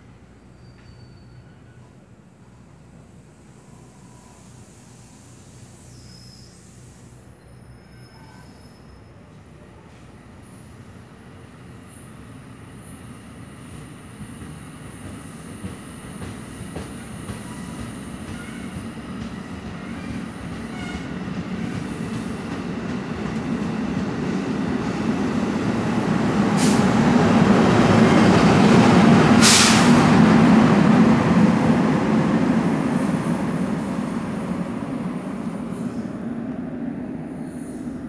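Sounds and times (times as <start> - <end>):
electric locomotive hum: 9.4 - 38.0
train wheels rumbling on rails: 12.8 - 38.0.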